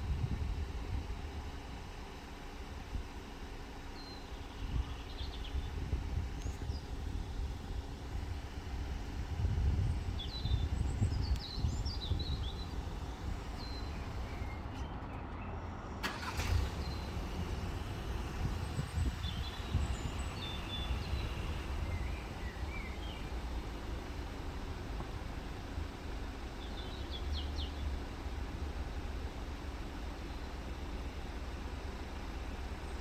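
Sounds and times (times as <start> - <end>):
steady low rumble: 0.0 - 33.0
small birds chirping: 1.3 - 16.0, 16.7 - 33.0.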